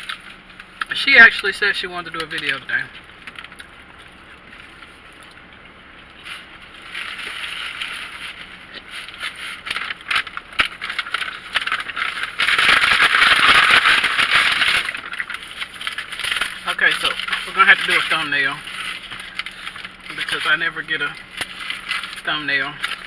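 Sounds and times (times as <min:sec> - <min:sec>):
paper bags rustling and crinkling: 0:06.2 - 0:23.0.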